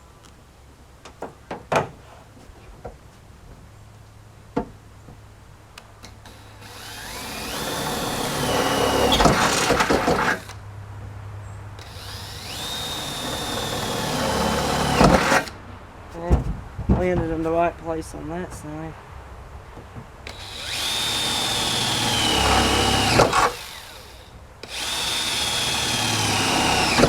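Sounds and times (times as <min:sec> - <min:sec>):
power drill motor whine: 0:06.3 - 0:10.6, 0:11.8 - 0:15.6, 0:20.3 - 0:27.0.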